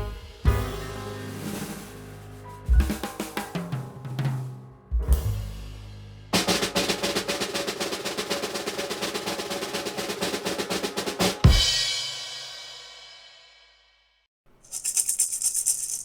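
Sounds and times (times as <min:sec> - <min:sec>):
snare drum roll: 0:00.0 - 0:02.1, 0:02.7 - 0:04.4, 0:06.4 - 0:12.2.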